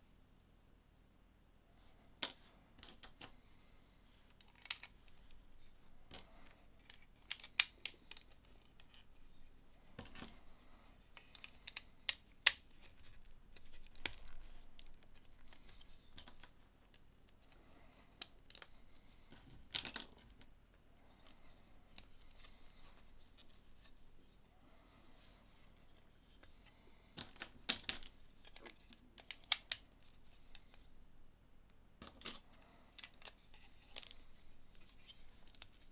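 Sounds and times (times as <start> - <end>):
plastic pieces clicking together: 6.1 - 9.1, 11.2 - 17.0, 27.2 - 30.7.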